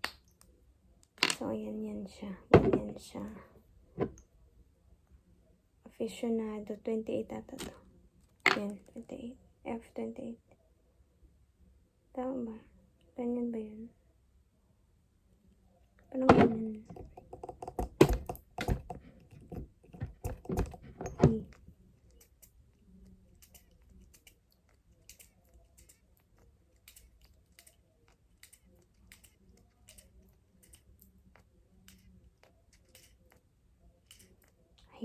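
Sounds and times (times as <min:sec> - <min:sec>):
perfume bottle knocking: 0:16.3 - 0:21.4.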